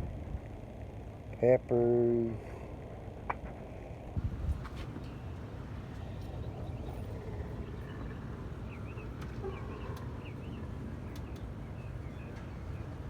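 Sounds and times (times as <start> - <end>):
wind rumble: 2.7 - 13.0
small birds chirping: 4.4 - 13.0.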